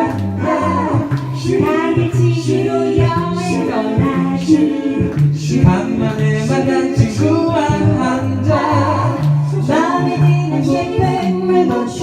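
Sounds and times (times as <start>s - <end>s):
a cappella group singing: 0.0s - 12.0s.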